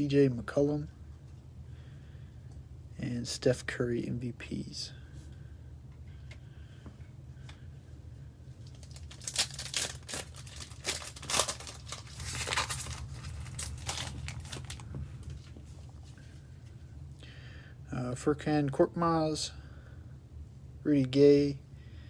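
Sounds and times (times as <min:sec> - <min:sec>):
steady low hum: 0:00.0 - 0:22.0
card pack wrapper tearing: 0:08.6 - 0:15.5.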